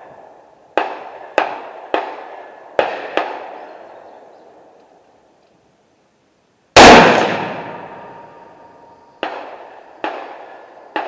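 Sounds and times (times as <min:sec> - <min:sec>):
distant gunshots: 0:00.8 - 0:03.6, 0:06.8 - 0:08.3, 0:09.2 - 0:11.0
loud rifle shot echoing: 0:06.8 - 0:08.4.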